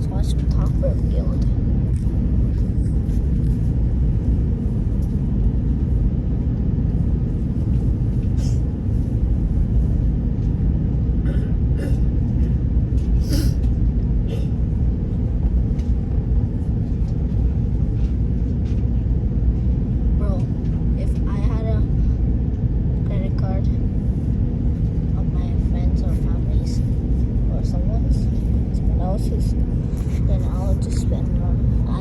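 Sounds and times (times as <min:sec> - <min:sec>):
airliner engine rumble: 0:00.0 - 0:32.0.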